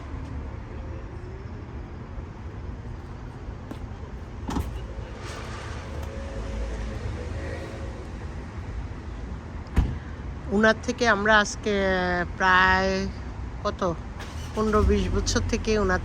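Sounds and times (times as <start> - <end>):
car engine rumble: 0.0 - 10.5, 13.4 - 16.0.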